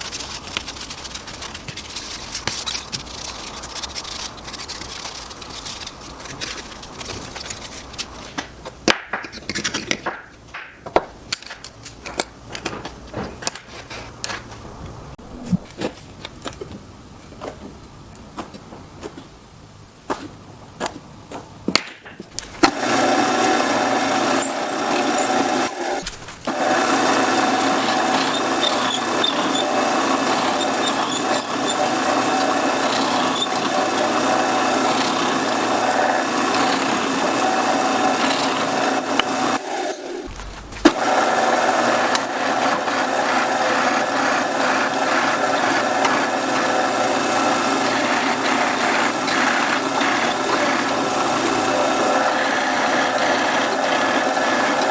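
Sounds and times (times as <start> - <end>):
wood pieces and tools clicking: 0.0 - 19.2, 20.8 - 41.2, 44.4 - 54.9
power tool running on wood: 22.5 - 54.9.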